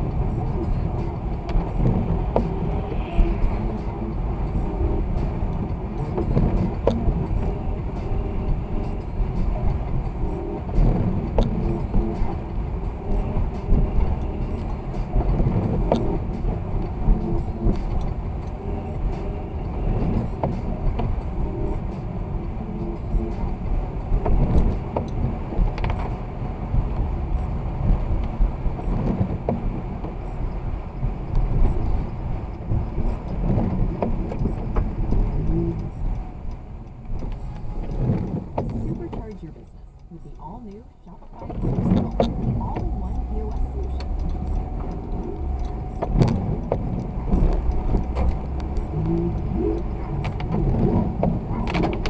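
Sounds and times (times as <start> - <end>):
car engine and road rumble: 0.0 - 52.0
faint clicks and knocks: 26.8 - 52.0.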